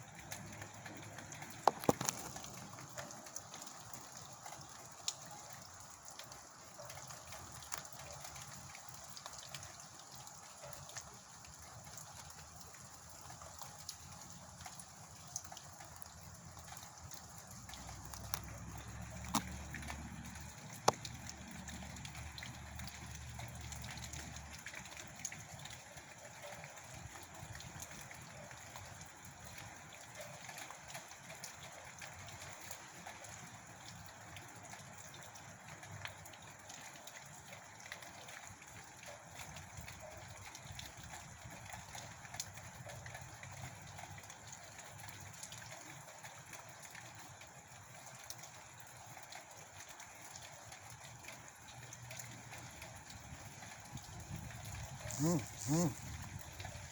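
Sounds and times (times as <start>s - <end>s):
small ticks and clicks: 0.2s - 28.1s.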